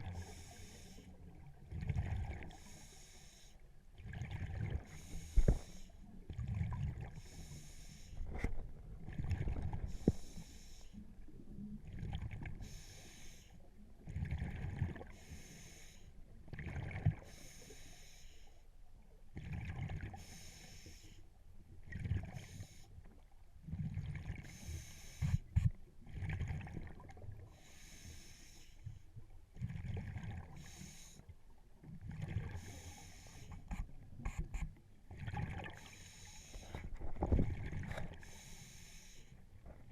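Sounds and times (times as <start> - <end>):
regulator hiss on inhale: 0.0 - 1.2, 2.5 - 3.6, 4.9 - 6.0, 7.2 - 8.3, 9.9 - 11.0, 12.6 - 13.7, 15.1 - 16.2, 17.2 - 18.6, 20.2 - 21.3, 24.4 - 25.5, 27.6 - 29.0, 30.6 - 31.3, 32.6 - 33.8, 35.8 - 36.9, 38.2 - 39.4
bubbling rumble on exhale: 4.0 - 5.6, 6.3 - 7.2, 29.6 - 30.6, 36.7 - 38.2.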